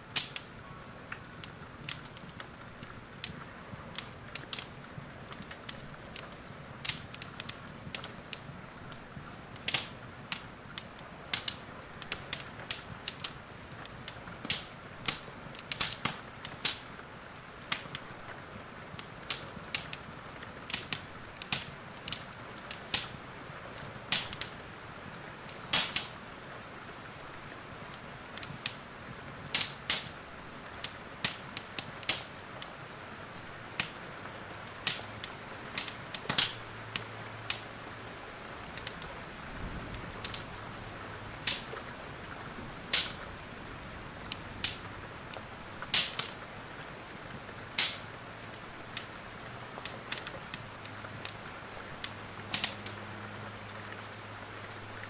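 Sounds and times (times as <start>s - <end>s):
fire popping: 0.0s - 26.3s, 27.0s - 53.1s
soft hiss: 0.0s - 55.0s
wood fire crackling: 0.0s - 55.0s.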